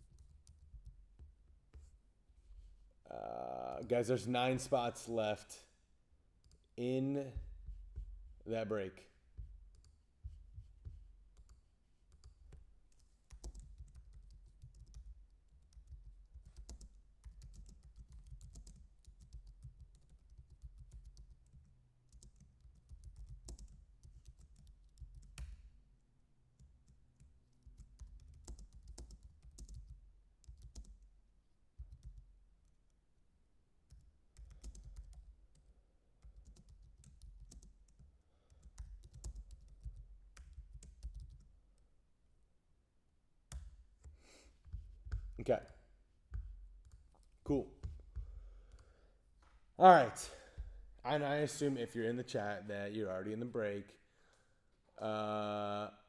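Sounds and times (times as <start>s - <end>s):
typing on computer keyboard: 11.4s - 25.7s, 26.6s - 31.0s, 31.8s - 32.8s, 33.9s - 41.5s.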